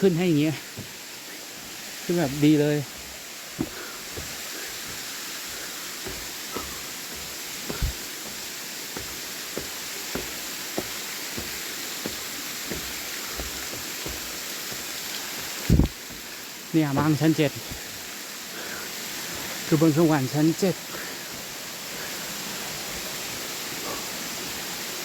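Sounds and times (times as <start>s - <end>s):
waterfall rushing: 0.0s - 25.0s
footsteps on a trail: 0.6s - 18.2s.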